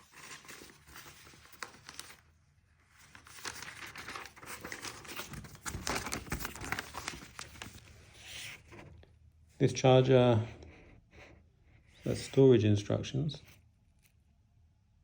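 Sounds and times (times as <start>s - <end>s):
paper pages rustling: 0.0s - 8.9s.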